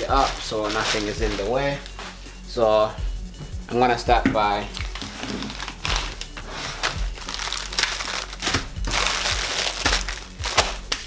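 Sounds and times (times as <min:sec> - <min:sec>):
garlic skin crinkling: 0:00.0 - 0:02.4, 0:04.7 - 0:11.0.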